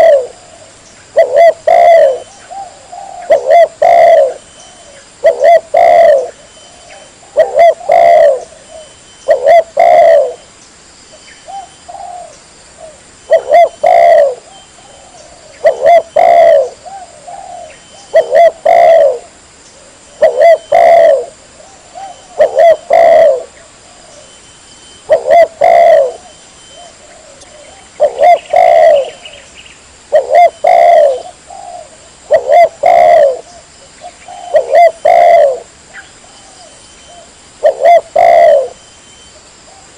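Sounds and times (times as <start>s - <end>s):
dove cooing: 0.0s - 10.5s, 11.4s - 24.4s, 25.0s - 39.9s.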